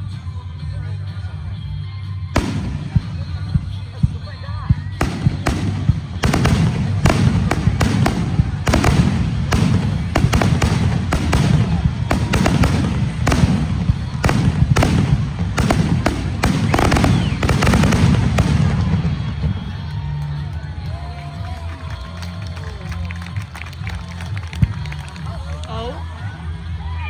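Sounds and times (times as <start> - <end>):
steady low rumble: 0.8 - 21.6
firework booms and cracks: 2.4 - 4.3, 4.9 - 20.0.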